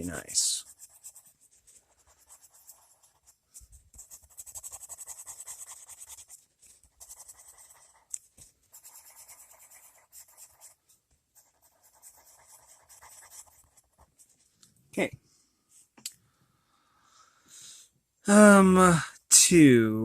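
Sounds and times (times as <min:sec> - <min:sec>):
pencil shading on paper: 0:00.0 - 0:14.4.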